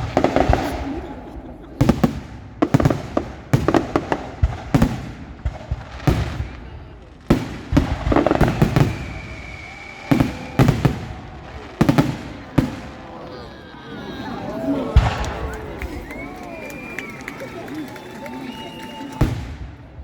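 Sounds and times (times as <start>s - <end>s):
fireworks exploding with sharp bangs: 0.0s - 13.4s, 14.6s - 20.0s.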